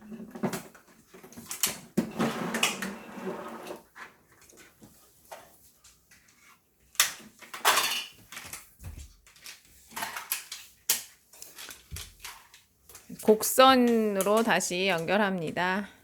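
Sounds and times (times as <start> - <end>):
plastic track pieces clattering: 7.0 - 8.6, 9.3 - 12.6.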